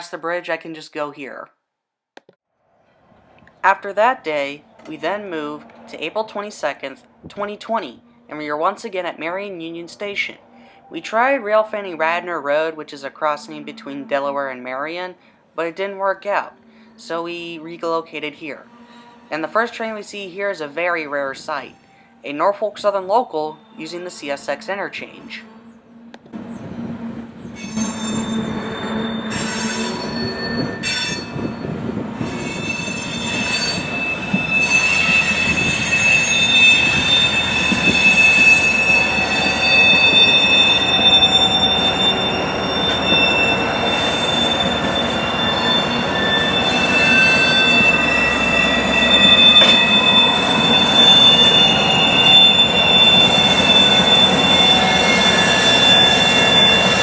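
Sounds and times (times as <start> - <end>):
train low rumble: 25.6 - 57.0
train wheels squealing on rails: 26.4 - 57.0.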